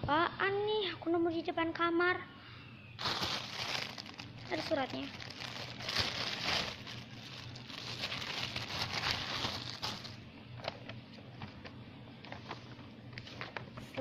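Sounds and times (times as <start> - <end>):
paper and packaging rustling: 3.0 - 14.0.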